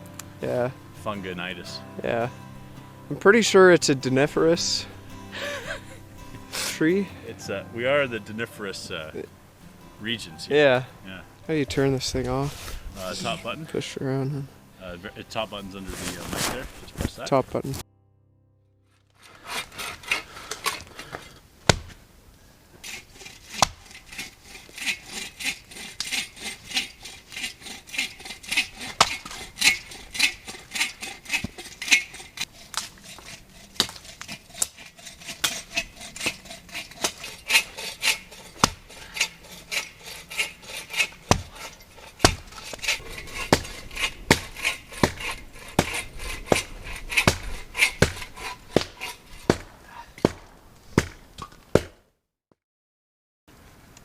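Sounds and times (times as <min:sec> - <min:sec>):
hand saw cutting wood: 0:03.8 - 0:07.6, 0:11.5 - 0:13.6, 0:15.4 - 0:16.6, 0:19.2 - 0:21.4, 0:22.8 - 0:49.9
sharp knocks: 0:41.3 - 0:52.0.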